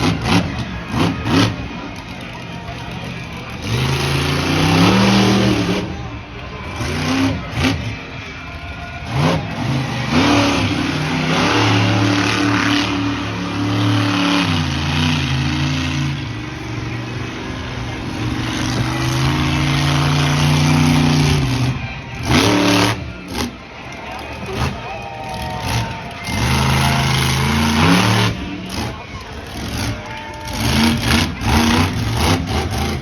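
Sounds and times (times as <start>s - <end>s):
monster truck engine revving: 0.0s - 33.0s.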